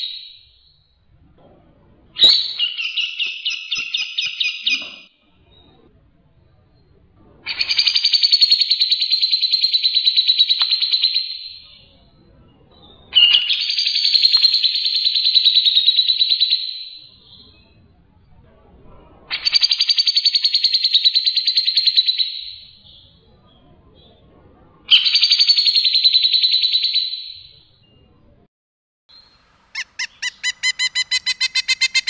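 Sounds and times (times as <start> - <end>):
songbird trilling: 29.2 - 32.0.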